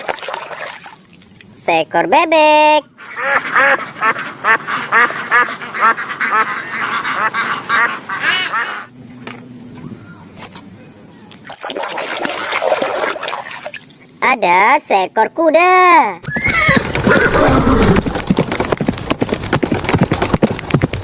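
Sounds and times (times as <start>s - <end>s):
duck quacking: 3.0s - 8.9s.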